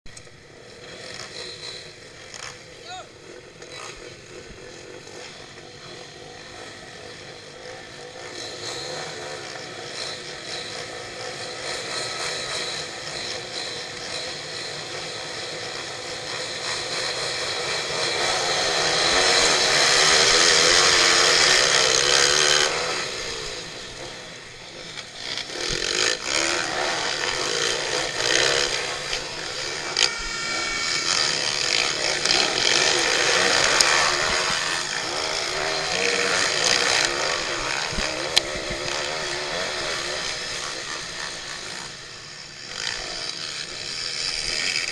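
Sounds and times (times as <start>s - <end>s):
pitbike engines revving: 0.1s - 44.9s.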